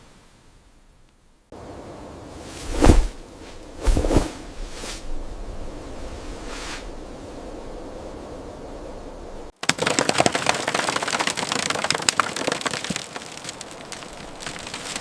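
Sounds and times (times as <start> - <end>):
rain pattering on hard surface: 9.6 - 15.0.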